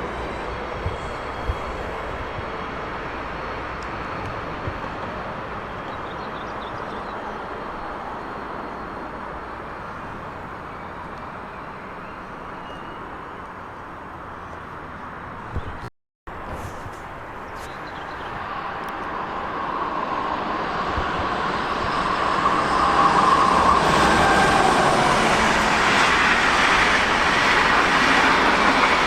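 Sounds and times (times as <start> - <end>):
train rolling: 0.0 - 11.8, 18.4 - 29.0.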